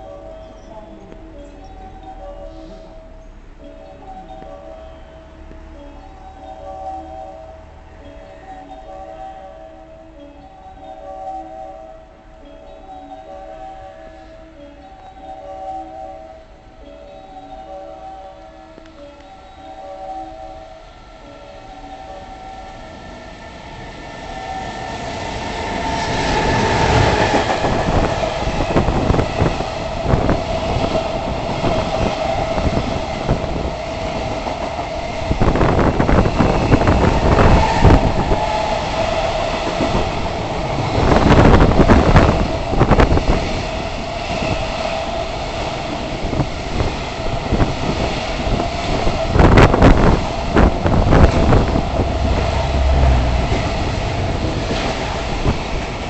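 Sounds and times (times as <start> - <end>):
steady whine: 20.7 - 56.0.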